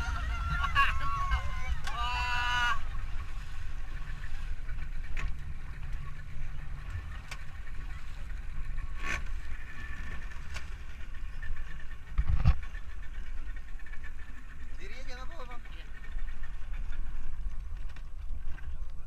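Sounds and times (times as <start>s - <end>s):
boat engine rumble: 0.0s - 19.0s.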